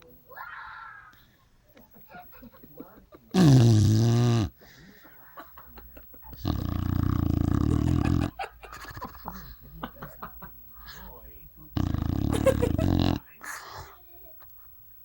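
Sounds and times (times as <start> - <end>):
dog snoring loudly: 3.3 - 4.6, 6.4 - 8.4, 11.7 - 13.2.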